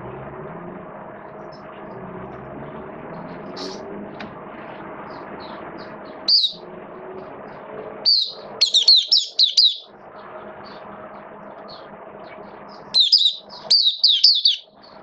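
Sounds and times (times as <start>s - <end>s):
steady background hum: 0.8s - 15.0s
bird chirping: 3.5s - 3.9s, 5.1s - 6.6s, 8.0s - 9.9s, 11.6s - 15.0s.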